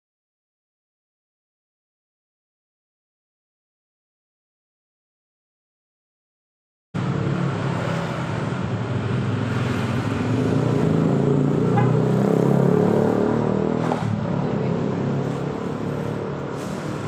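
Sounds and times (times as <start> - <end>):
passing street traffic: 7.0 - 17.0.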